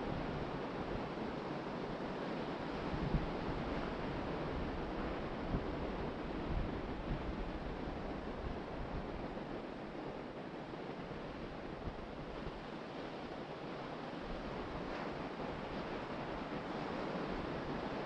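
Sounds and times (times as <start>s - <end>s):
ocean surf washing on beach: 0.1s - 18.0s
wind buffeting microphone: 2.7s - 10.2s.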